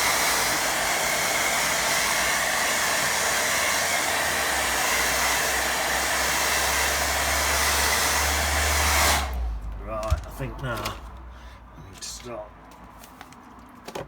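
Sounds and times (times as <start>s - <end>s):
hair dryer running: 0.0s - 10.3s.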